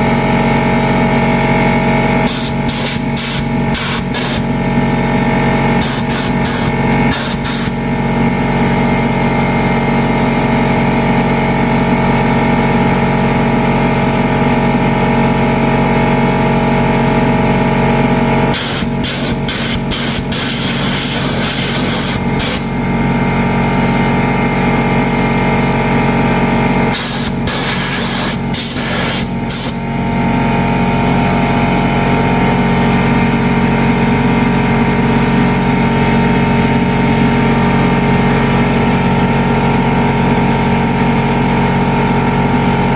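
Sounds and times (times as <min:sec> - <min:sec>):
steady mechanical hum: 0:00.0 - 0:42.9
compressed air blow gun hissing: 0:02.3 - 0:04.5, 0:05.8 - 0:07.8, 0:18.5 - 0:22.7, 0:26.9 - 0:29.8.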